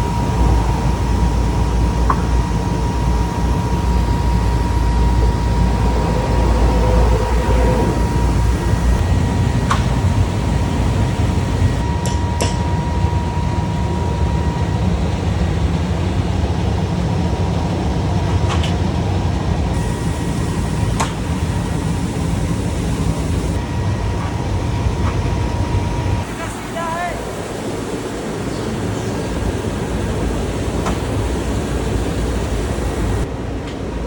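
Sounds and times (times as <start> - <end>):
machine humming: 0.0 - 12.1, 19.7 - 23.8, 25.8 - 33.3
thin steady whine: 0.0 - 16.4, 19.7 - 33.5
sharp clicks: 19.8 - 23.6.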